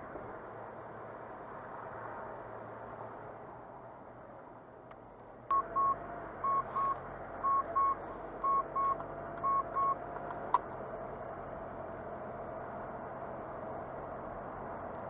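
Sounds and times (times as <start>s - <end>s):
car warning chime beeps: 5.5s - 10.1s.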